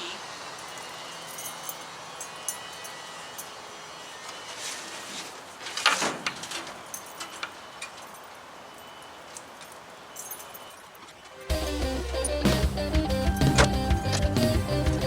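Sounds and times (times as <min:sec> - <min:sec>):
keys jingling: 0:00.6 - 0:03.5, 0:06.6 - 0:11.4.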